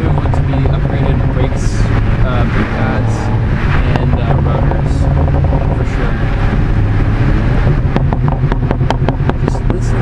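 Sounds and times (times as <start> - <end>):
car engine pulling: 0.0 - 10.0
wind buffeting microphone: 0.0 - 10.0.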